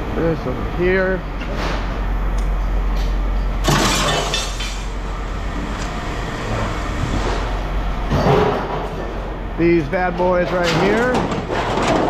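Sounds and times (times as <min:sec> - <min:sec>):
scrap metal crashing: 0:03.6 - 0:04.9, 0:08.1 - 0:09.2, 0:10.5 - 0:12.0.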